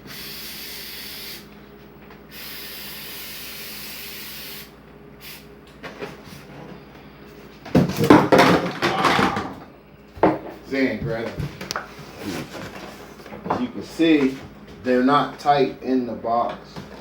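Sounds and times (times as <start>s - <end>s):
aerosol spray can hissing: 0.0s - 1.5s, 2.3s - 5.4s
clattering and knocking: 7.7s - 11.6s.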